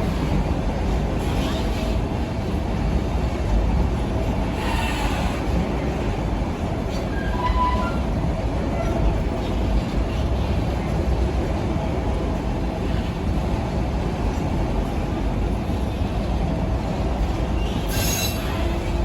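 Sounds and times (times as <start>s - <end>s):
train wheels rumbling on rail: 0.0s - 19.0s
high-pitched wheel squeal: 7.1s - 8.1s, 17.9s - 18.6s.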